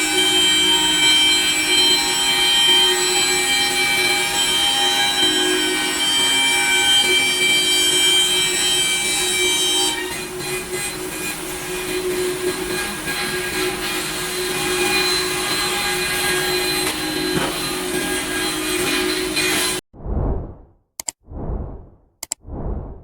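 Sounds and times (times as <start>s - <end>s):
wood cutting noise: 7.0s - 19.8s.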